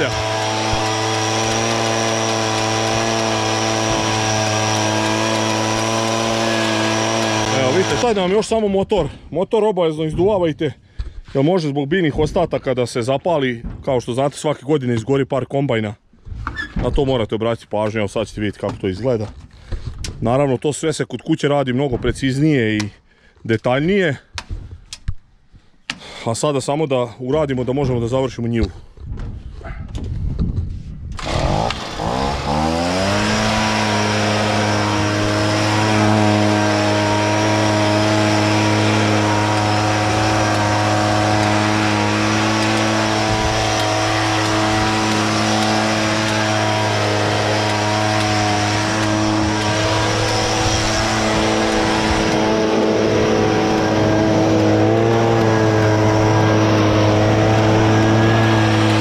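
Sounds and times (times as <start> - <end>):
engine running: 0.0 - 8.4, 31.2 - 59.0.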